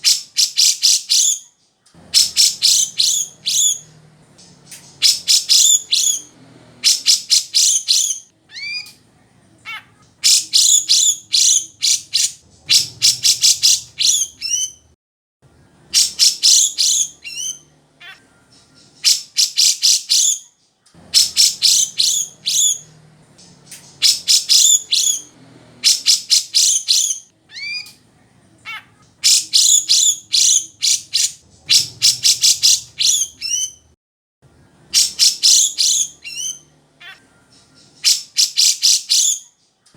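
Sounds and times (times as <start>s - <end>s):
bulbul singing chattering notes: 2.2s - 6.3s.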